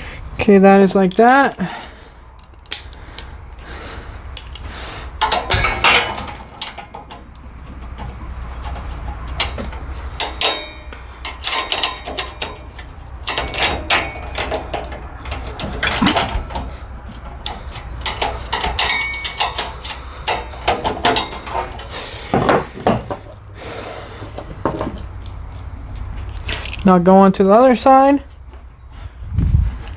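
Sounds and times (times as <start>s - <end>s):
steady low hum: 0.0s - 26.8s
metal parts clanking and scraping: 1.0s - 23.4s, 26.2s - 26.8s.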